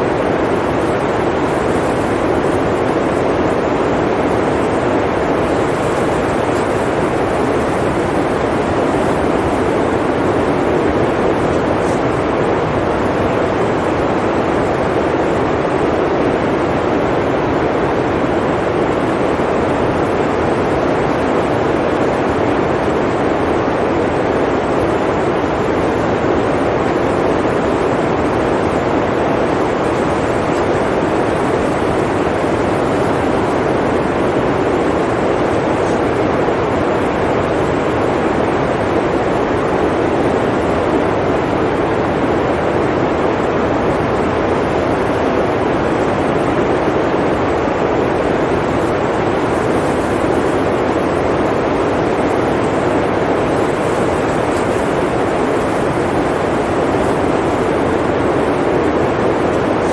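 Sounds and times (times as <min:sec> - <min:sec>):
blizzard wind rushing: 0:00.0 - 0:59.9.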